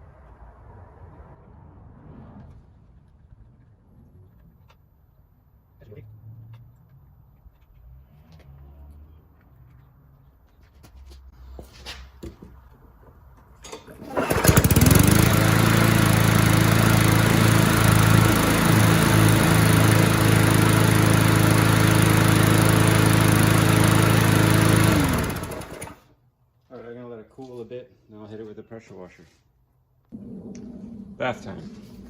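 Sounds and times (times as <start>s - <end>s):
lawnmower engine running: 13.9s - 26.1s.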